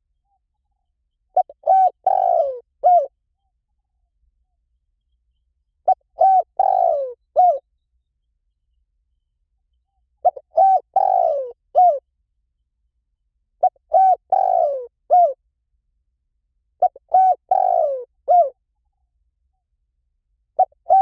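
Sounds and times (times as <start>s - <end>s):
dove cooing: 1.4s - 3.1s, 5.8s - 7.7s, 10.2s - 12.0s, 13.6s - 15.4s, 16.8s - 18.6s, 20.6s - 21.0s.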